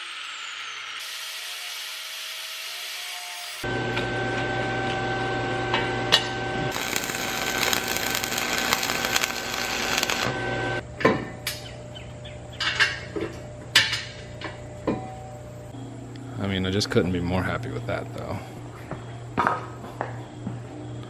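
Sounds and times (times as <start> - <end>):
power tool running: 0.0 - 10.8.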